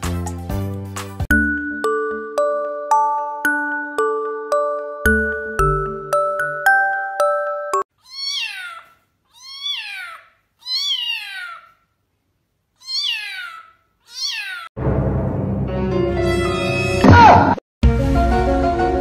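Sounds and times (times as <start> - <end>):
tinkly music notes: 1.3 - 7.9
kitten meowing: 8.0 - 11.7, 12.8 - 14.7.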